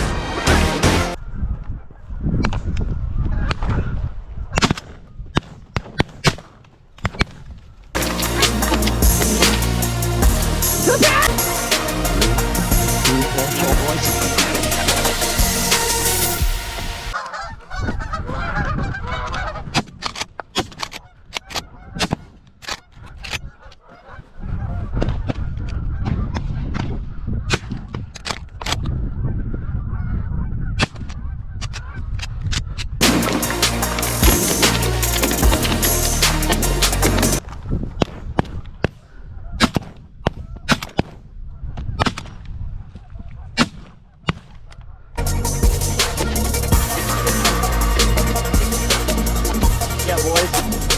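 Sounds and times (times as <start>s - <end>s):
geese honking: 8.0s - 19.6s, 45.2s - 50.9s.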